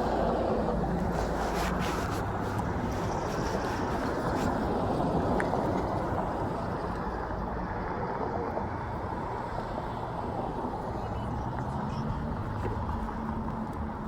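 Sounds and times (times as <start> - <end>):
low road rumble: 0.0 - 14.0.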